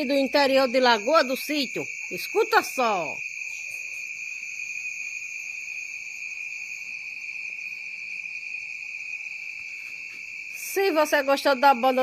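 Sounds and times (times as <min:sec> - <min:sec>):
crickets chorusing: 0:00.0 - 0:12.0.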